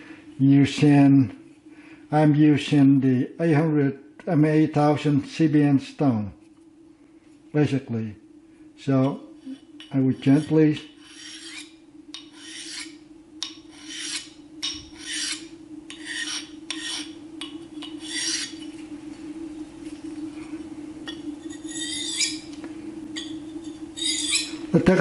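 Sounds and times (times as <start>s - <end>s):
steady low hum: 0.0s - 25.0s
knife rasping on sharpening stone: 9.4s - 17.2s, 17.8s - 18.7s, 21.1s - 22.5s, 23.2s - 24.6s.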